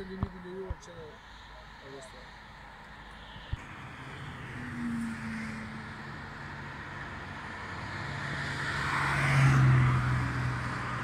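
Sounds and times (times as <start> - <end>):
highway traffic: 0.0 - 11.0
car passing close: 3.4 - 11.0.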